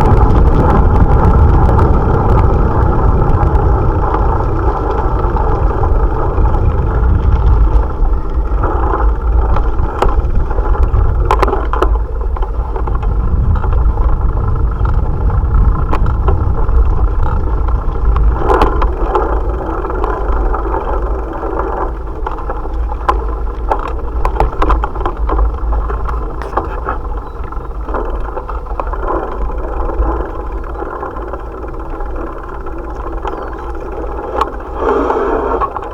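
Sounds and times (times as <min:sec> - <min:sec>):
bicycle tyres humming: 0:00.0 - 0:35.9
wind buffeting microphone: 0:00.0 - 0:35.9.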